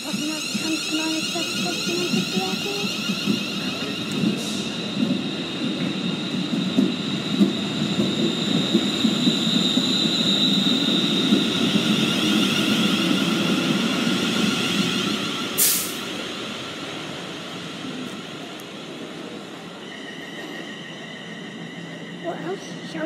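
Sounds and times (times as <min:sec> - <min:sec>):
high-pitched train whine: 0:00.0 - 0:23.0
wheels rumbling on rail: 0:00.0 - 0:23.0
short sharp hiss: 0:15.6 - 0:16.0.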